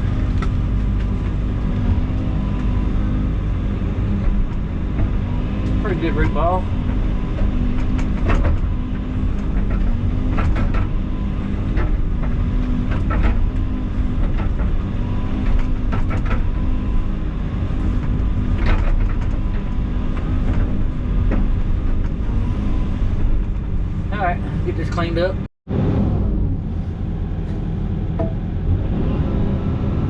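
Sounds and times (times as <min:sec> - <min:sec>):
excavator diesel engine running: 0:00.0 - 0:25.5
knocks and clanks of machine: 0:04.0 - 0:23.9, 0:27.5 - 0:28.5.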